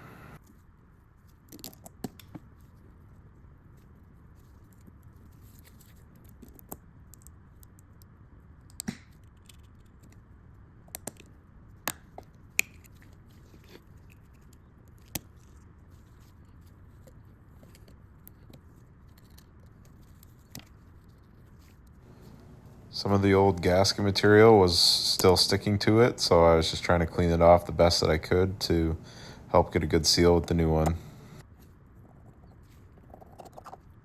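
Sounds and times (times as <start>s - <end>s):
faint steady hiss: 0.0s - 0.4s, 22.0s - 31.4s.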